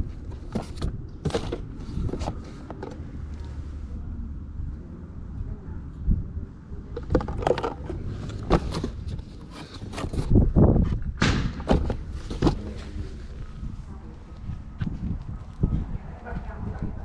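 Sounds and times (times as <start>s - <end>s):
knocks and thuds: 11.2s - 12.6s.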